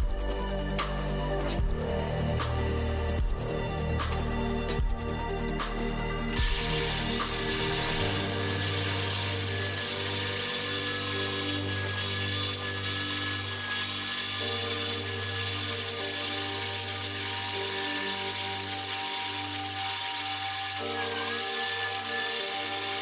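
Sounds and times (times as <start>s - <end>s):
power tool working wood: 6.2s - 23.0s.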